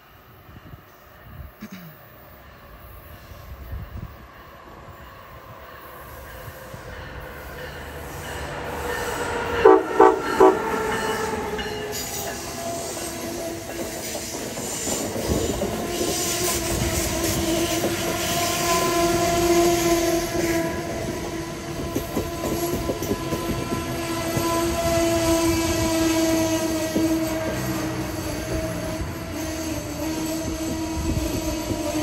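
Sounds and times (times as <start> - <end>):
train cars rolling past: 2.1 - 32.0
train horn blasts: 8.2 - 13.8, 14.9 - 32.0.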